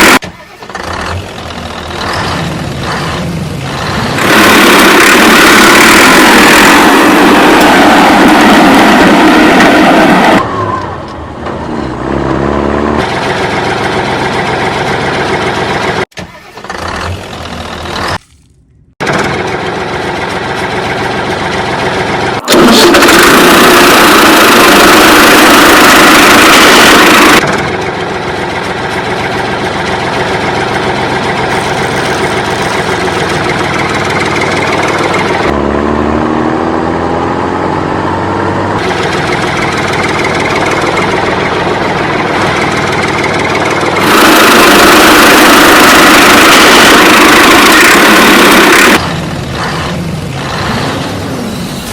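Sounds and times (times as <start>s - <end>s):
toy vehicle engine revving: 0.0s - 9.3s, 22.0s - 27.6s, 38.7s - 51.5s.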